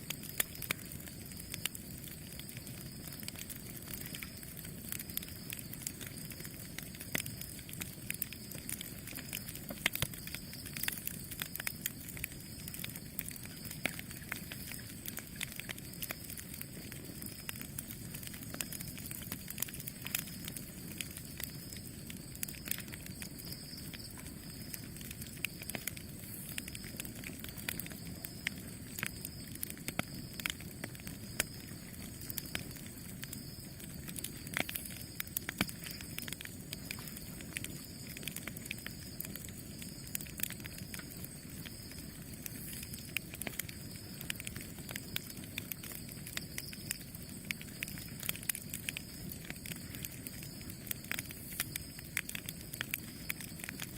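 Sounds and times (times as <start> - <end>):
campfire crackling and popping: 0.0 - 53.9.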